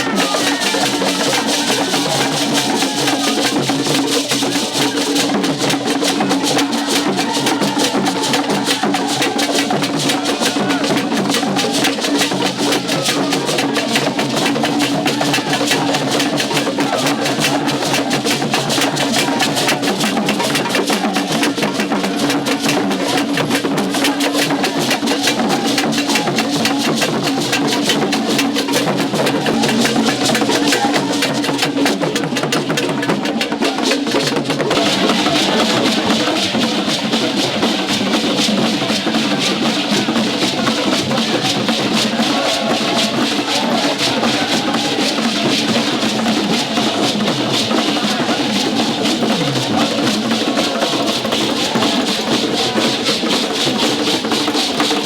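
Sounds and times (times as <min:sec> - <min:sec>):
fast drum beat: 0:00.0 - 0:55.0.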